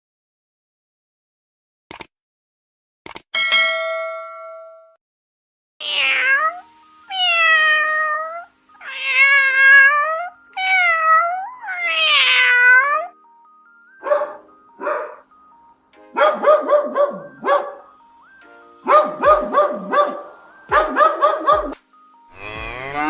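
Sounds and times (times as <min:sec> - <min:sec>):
cat meowing: 0:05.8 - 0:13.1
faint background music: 0:05.8 - 0:23.0
dog barking: 0:14.0 - 0:15.2, 0:16.1 - 0:17.9, 0:18.8 - 0:21.8.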